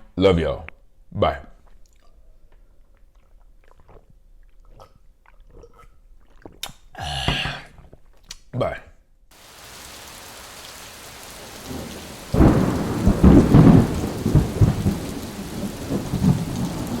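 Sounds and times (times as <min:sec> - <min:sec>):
rain hissing: 0:09.4 - 0:17.0
thunder rumbling: 0:09.4 - 0:17.0.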